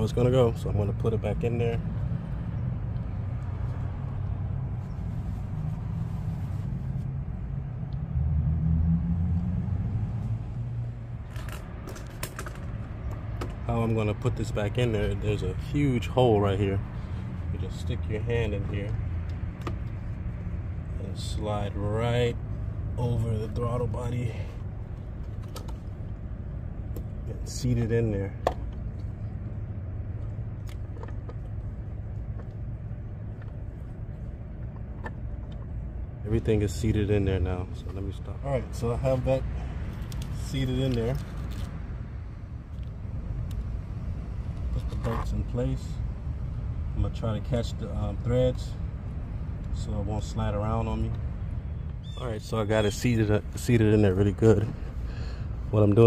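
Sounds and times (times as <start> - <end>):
clicks and knocks of parts handled: 11.2 - 13.6
light clicks of parts being handled: 39.8 - 41.8.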